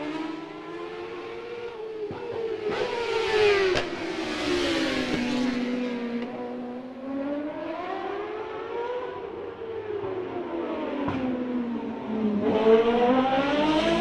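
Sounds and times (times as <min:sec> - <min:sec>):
racing motorcycle engine: 0:00.0 - 0:14.0.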